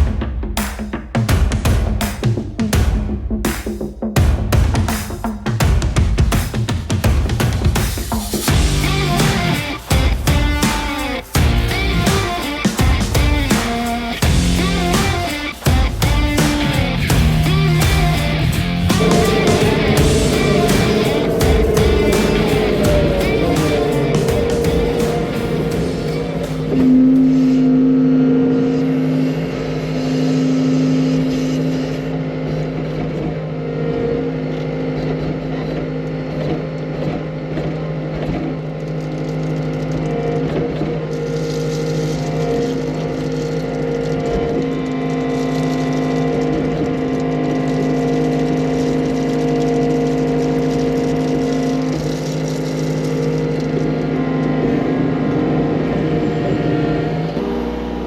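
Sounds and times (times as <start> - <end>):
skid loader engine humming: 14.2 - 27.2.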